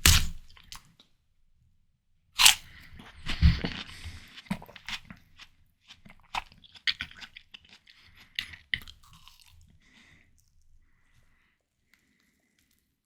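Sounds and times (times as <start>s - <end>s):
chewing juicy watermelon: 2.4s - 10.6s.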